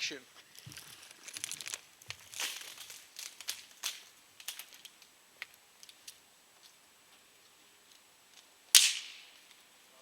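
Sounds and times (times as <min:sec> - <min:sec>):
packaging rustling: 0:00.6 - 0:04.9.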